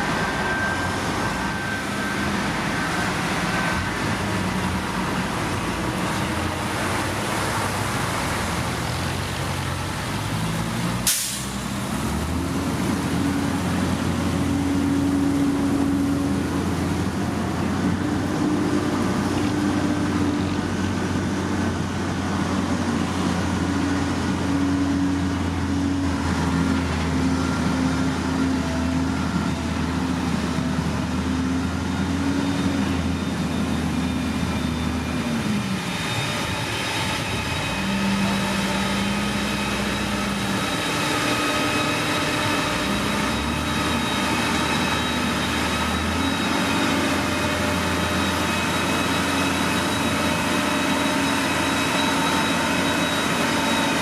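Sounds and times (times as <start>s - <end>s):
diesel machinery engine running: 0.0s - 54.0s
steady high whine: 27.0s - 54.0s.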